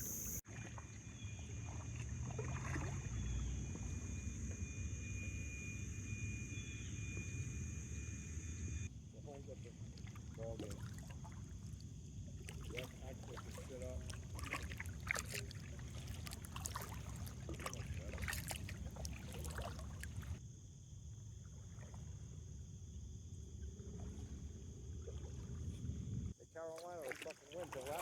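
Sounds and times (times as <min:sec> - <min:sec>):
faint high-pitched tone: 0:00.0 - 0:00.4, 0:03.0 - 0:08.9
kayak paddle splashing: 0:00.0 - 0:04.9, 0:09.4 - 0:20.4, 0:23.8 - 0:28.0.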